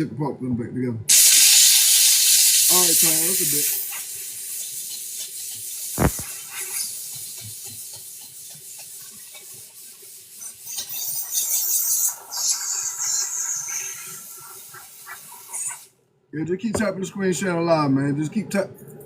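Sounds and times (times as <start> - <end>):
high hiss: 1.1 - 7.4.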